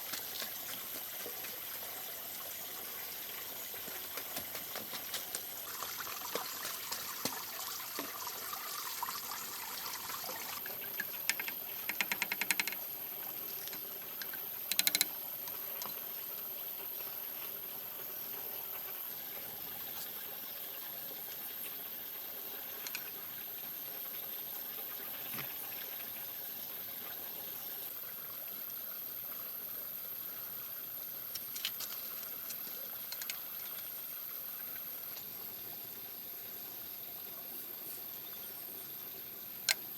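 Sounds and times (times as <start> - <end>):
water trickling: 0.0 - 39.9
sharp clicks: 14.7 - 15.2.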